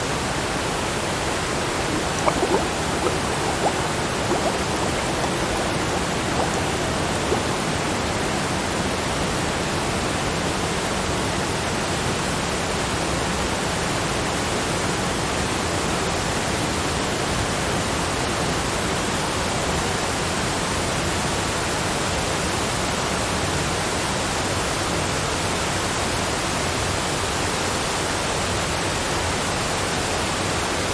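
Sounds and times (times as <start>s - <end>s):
water rushing: 0.9s - 9.2s.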